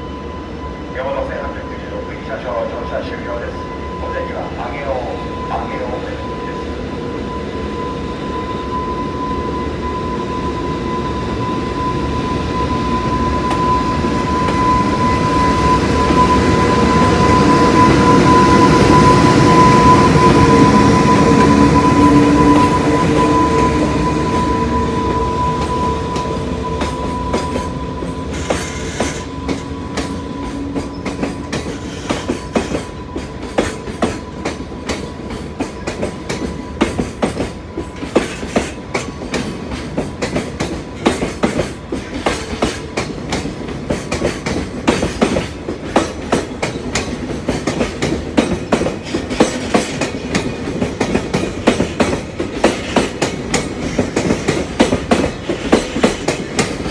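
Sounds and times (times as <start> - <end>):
train wheels clattering over rail joints: 25.5 - 56.9.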